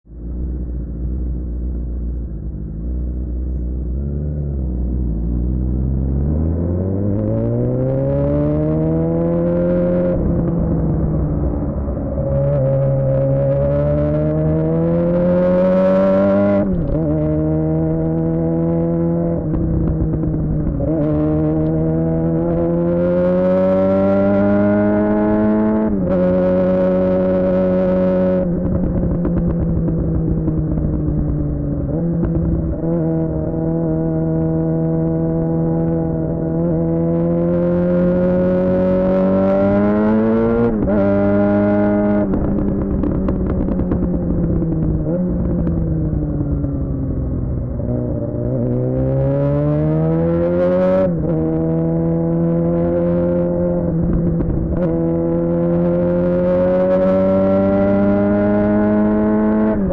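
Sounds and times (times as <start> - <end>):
motorcycle engine revving: 0.3 - 59.9.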